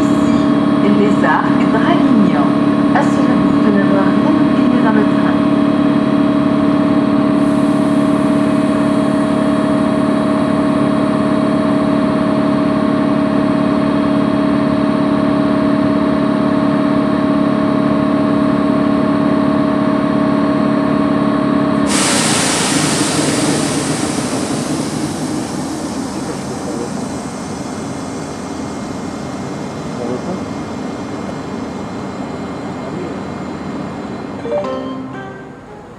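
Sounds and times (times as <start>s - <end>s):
electric train humming: 0.0s - 35.9s
rushing noise: 21.9s - 31.3s.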